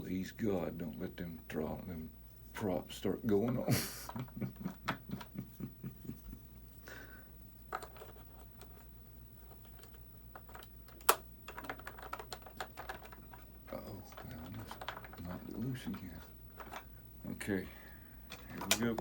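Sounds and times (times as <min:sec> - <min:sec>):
small plastic parts clicking: 0:09.6 - 0:16.9.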